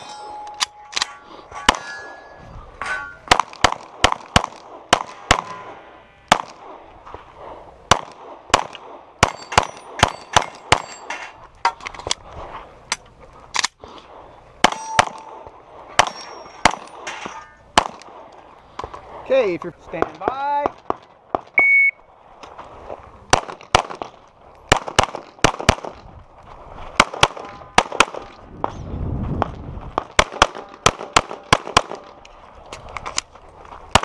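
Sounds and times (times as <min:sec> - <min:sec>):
steel targets ringing: 0:00.0 - 0:03.3, 0:05.1 - 0:06.3, 0:09.2 - 0:11.4, 0:14.6 - 0:17.7
pistol shots: 0:03.3 - 0:06.8, 0:07.9 - 0:11.0, 0:17.8 - 0:18.2, 0:23.3 - 0:26.0, 0:27.0 - 0:28.4, 0:30.0 - 0:32.2.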